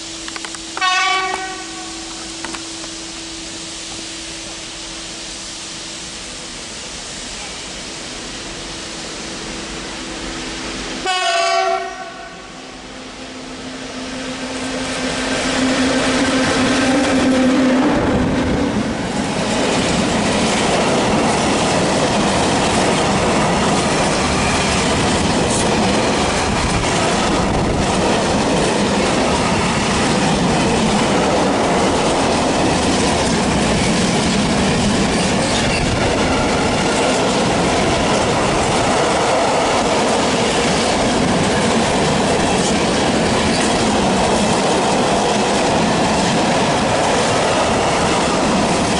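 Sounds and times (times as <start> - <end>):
train horn blast: 0.7 - 5.3, 10.3 - 18.1
train wheels clattering: 14.8 - 48.9.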